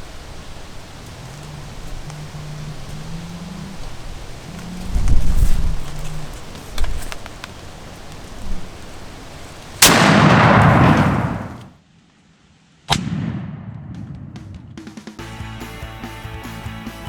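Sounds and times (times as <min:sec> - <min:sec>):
quieter gunshot crack: 0:09.8 - 0:11.7, 0:12.9 - 0:14.8
shotgun shot booming: 0:09.8 - 0:11.7, 0:12.9 - 0:14.8.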